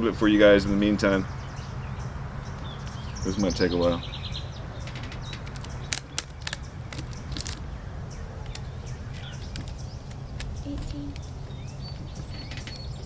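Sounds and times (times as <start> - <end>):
low background rumble: 0.0 - 13.0
small birds chirping: 0.0 - 13.0
sharp clicks: 4.8 - 7.7, 8.4 - 11.4.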